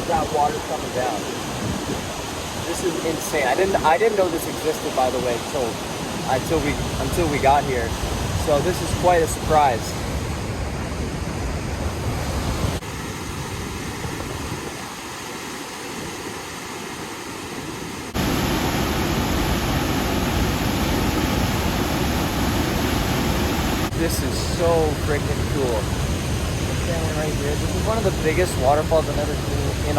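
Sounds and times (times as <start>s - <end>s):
waterfall rushing: 0.0s - 29.9s.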